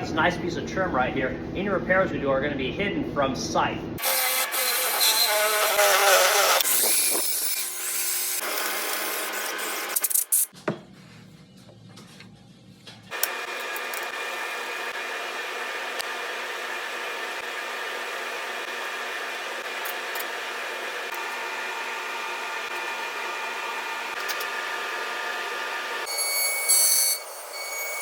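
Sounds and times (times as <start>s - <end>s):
power tool motor whining: 4.0s - 10.0s.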